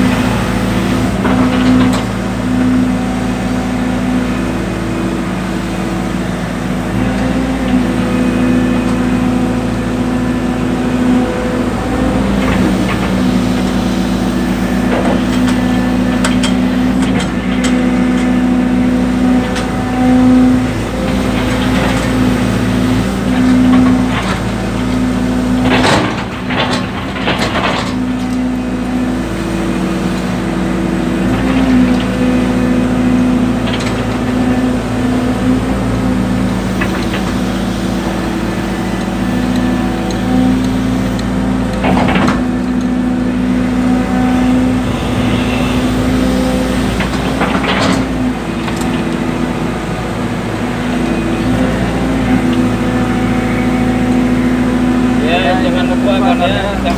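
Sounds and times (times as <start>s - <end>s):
excavator diesel engine running: 0.0s - 56.9s.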